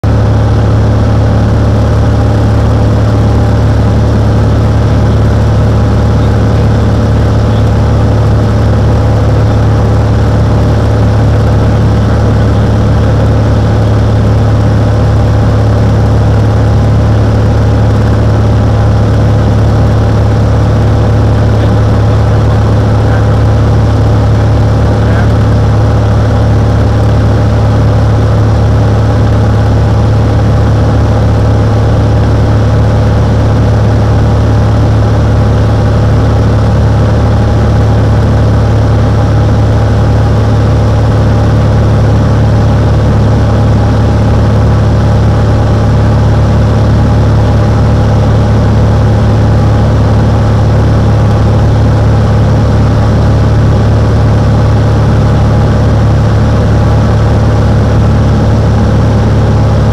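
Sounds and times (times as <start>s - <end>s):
propeller plane engine humming: 0.0s - 59.9s.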